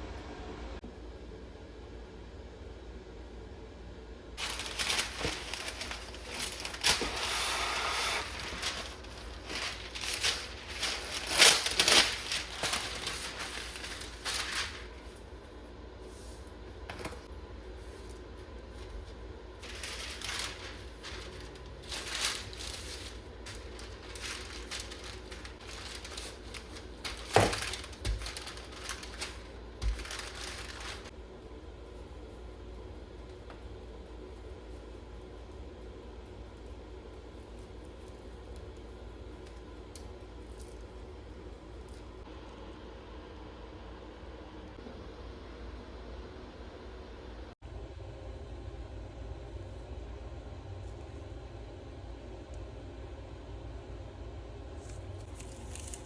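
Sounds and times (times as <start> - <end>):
crinkling and rustling: 4.4 - 15.4, 16.0 - 31.2, 54.8 - 56.0.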